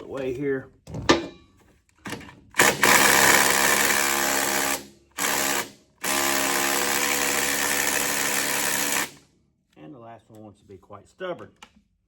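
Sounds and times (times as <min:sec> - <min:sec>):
impact wrench hammering on bolt: 0:02.6 - 0:09.2.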